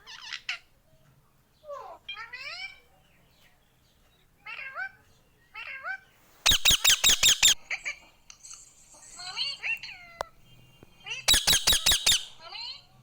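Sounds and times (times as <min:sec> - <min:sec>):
parrot chirps: 0:04.4 - 0:12.9
parrot squawking: 0:05.6 - 0:07.9, 0:11.0 - 0:12.9.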